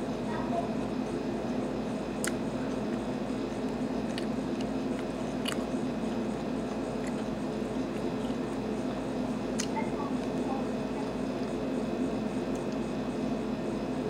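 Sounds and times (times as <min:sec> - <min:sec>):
steady background hum: 0:00.0 - 0:14.0
person chewing: 0:02.2 - 0:09.8.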